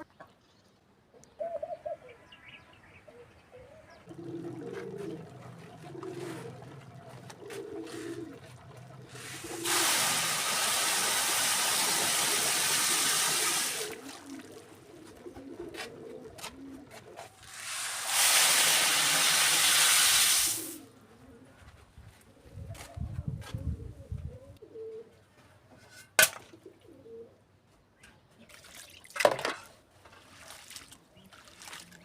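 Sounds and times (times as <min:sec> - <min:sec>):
pigeons cooing: 0:01.2 - 0:02.2, 0:03.1 - 0:17.8, 0:20.9 - 0:25.2, 0:26.5 - 0:27.4.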